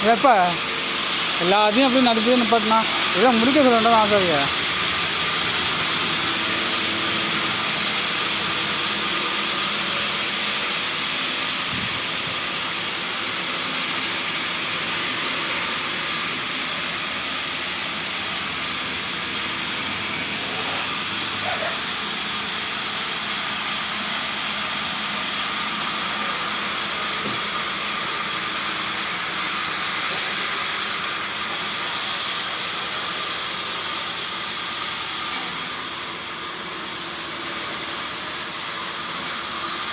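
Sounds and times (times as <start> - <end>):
steady hissing noise: 0.0 - 27.2.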